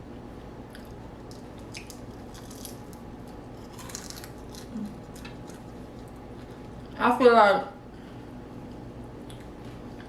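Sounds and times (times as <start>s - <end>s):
chewing crispy food: 0.6s - 7.0s.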